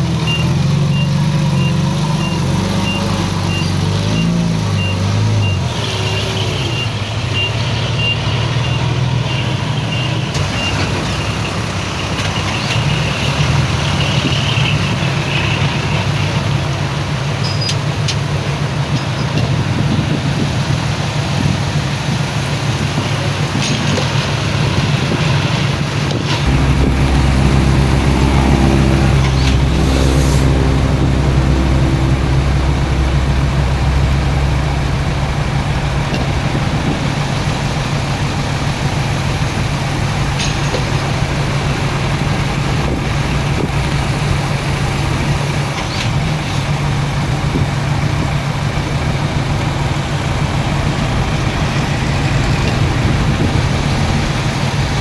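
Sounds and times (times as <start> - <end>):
heavy diesel machinery running: 0.0 - 18.9, 25.7 - 55.0
deeper heavier engine note: 26.4 - 40.2.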